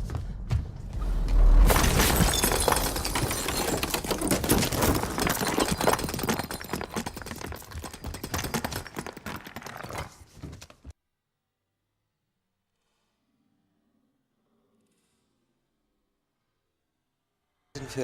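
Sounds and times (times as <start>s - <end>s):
rapid dense clattering and knocking: 1.8s - 10.9s.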